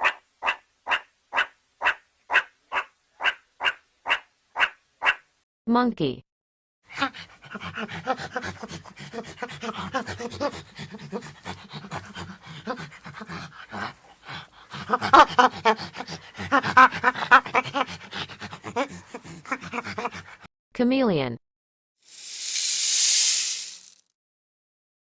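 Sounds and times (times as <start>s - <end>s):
monkey pant-like calls: 6.9s - 20.5s.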